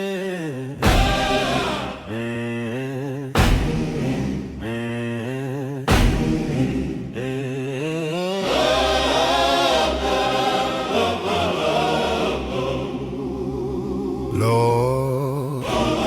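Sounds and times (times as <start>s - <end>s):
choir-like voices: 0.0s - 16.0s
single voice singing wordlessly: 7.2s - 16.0s.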